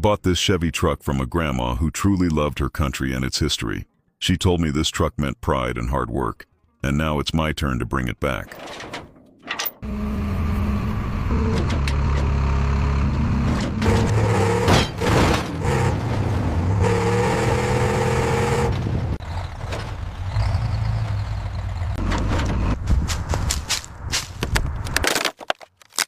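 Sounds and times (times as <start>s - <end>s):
truck engine running: 9.8s - 23.6s.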